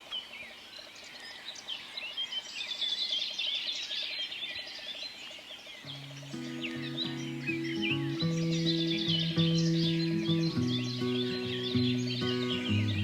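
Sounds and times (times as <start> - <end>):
songbirds singing: 0.0 - 13.0
guitar-like music: 5.9 - 13.0.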